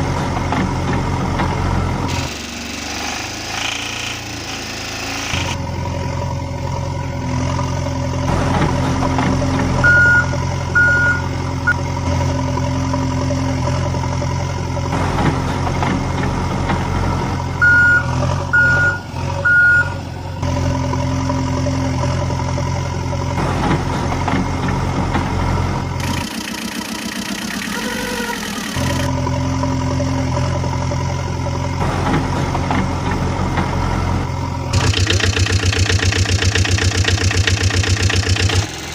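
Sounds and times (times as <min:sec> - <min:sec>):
heavy vehicle engine running: 0:00.0 - 0:38.9
reversing alarm beeping: 0:09.8 - 0:11.8, 0:17.6 - 0:20.0.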